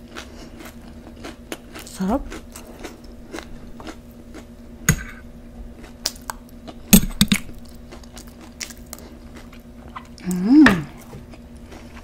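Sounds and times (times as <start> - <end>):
tortilla chips crunching: 0.0 - 4.5, 5.8 - 10.3
steady low hum: 0.0 - 12.0.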